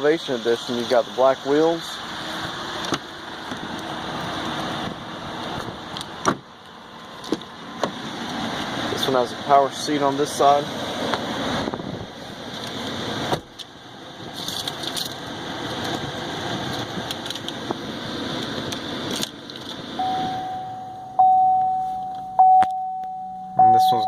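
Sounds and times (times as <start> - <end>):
electronic chime tone: 20.0 - 24.0
rustling and handling noise: 21.6 - 22.4.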